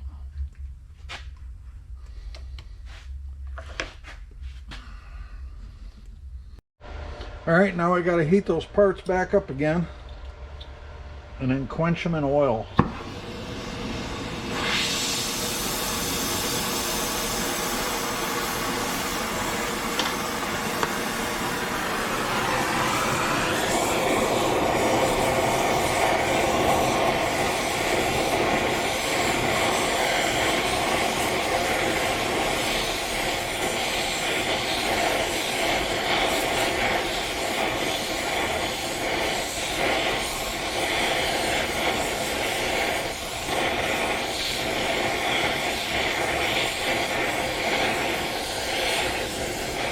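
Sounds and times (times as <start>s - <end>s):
gas torch flame roaring: 6.5s - 49.9s.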